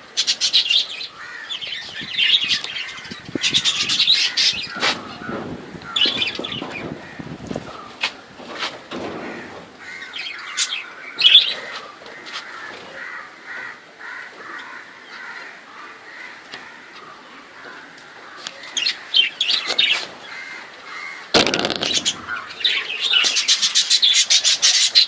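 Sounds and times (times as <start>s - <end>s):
budgerigars chattering and chirping: 0.2s - 8.0s, 18.7s - 25.0s.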